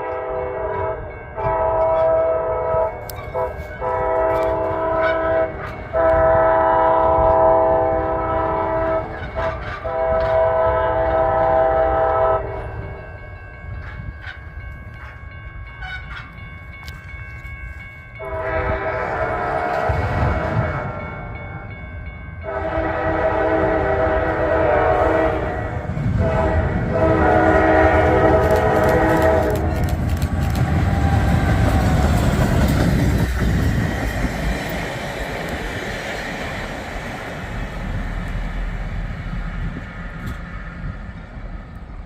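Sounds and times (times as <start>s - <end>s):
locomotive horn chord: 0.0s - 13.0s, 18.2s - 20.7s, 22.4s - 29.8s
train passing rumble: 0.0s - 42.0s
wheels clicking over rail joints: 27.7s - 37.4s.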